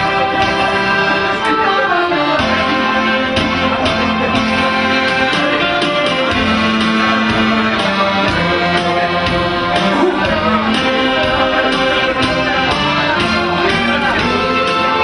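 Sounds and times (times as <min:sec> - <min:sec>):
accordion melody: 0:00.0 - 0:15.0
steady beat: 0:00.0 - 0:15.0.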